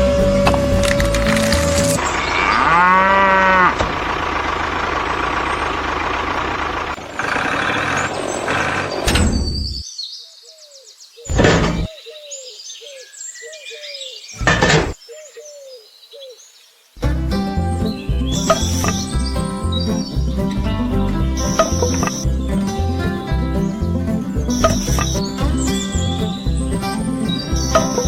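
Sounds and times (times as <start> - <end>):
steady noisy rumble: 3.7 - 8.1.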